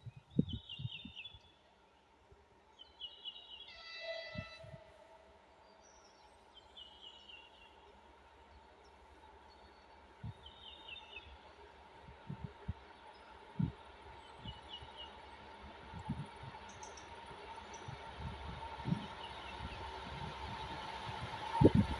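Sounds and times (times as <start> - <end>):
songbird singing: 0.0 - 1.7, 2.7 - 7.9, 8.8 - 21.9
distant horn: 3.7 - 5.5.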